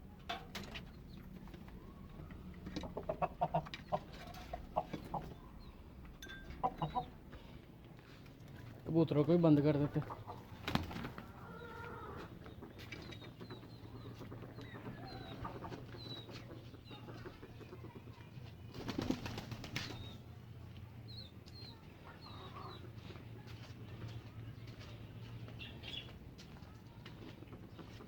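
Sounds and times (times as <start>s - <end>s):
small birds chirping: 0.0s - 28.0s
pigeons flapping wings: 10.5s - 11.3s, 18.7s - 20.1s.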